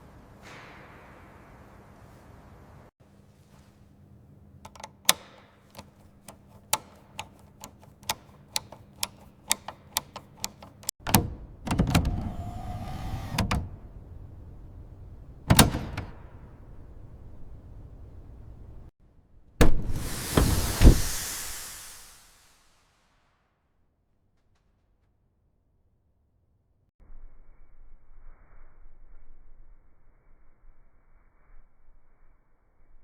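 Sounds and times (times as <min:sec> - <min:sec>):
sharp irregular clicks: 0:04.7 - 0:12.1.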